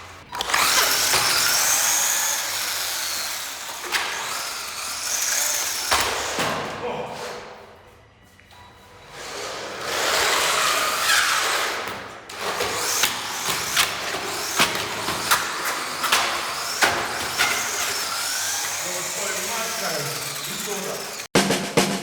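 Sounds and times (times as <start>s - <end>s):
electric motor whining: 0.2s - 5.9s, 12.6s - 21.3s.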